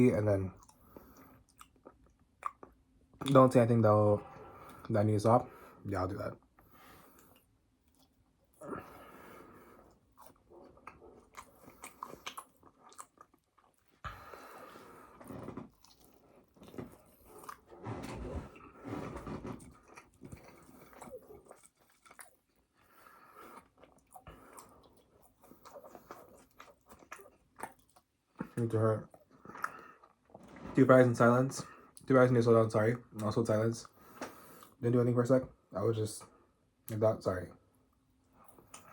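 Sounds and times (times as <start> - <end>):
person biting and chewing: 10.2 - 14.1.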